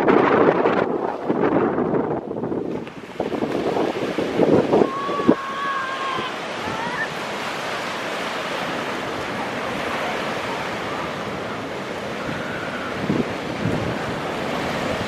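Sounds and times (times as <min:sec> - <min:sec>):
ocean waves breaking: 0:00.0 - 0:15.0
wind blowing on microphone: 0:00.0 - 0:15.0.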